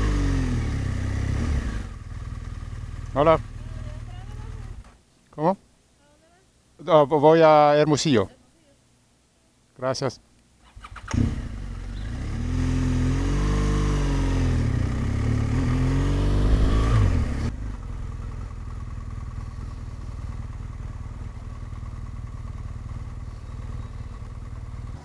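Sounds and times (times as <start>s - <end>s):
motorcycle engine accelerating: 0.0s - 4.9s, 10.7s - 25.0s
low engine hum: 11.1s - 25.0s.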